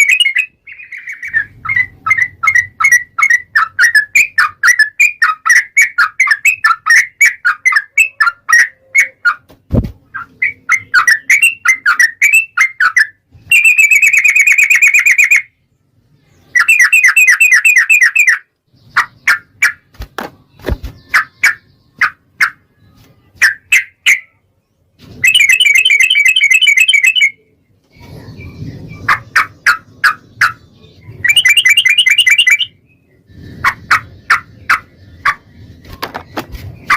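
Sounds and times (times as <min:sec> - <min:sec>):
bulbul singing: 0:00.0 - 0:09.5, 0:10.1 - 0:19.9, 0:25.2 - 0:27.6, 0:28.4 - 0:35.8.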